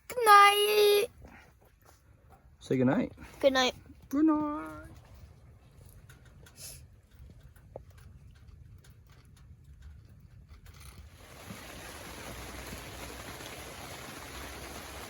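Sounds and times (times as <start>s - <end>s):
faint clicks: 5.8s - 11.0s
heavy rain hiss: 11.2s - 15.0s.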